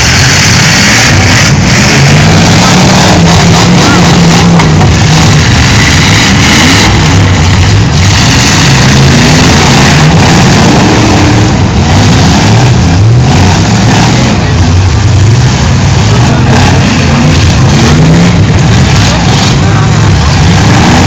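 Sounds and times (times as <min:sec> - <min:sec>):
car engines revving: 0:00.0 - 0:21.0.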